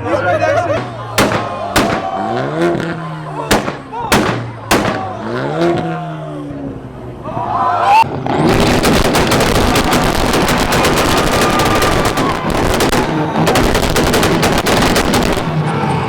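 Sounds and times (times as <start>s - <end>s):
exhaust pops and bangs: 0.7s - 5.8s, 8.5s - 15.6s.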